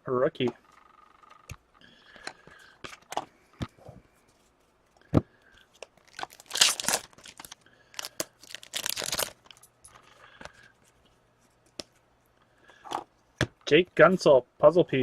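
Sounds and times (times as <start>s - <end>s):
foil pack tearing and crinkling: 6.0s - 9.4s.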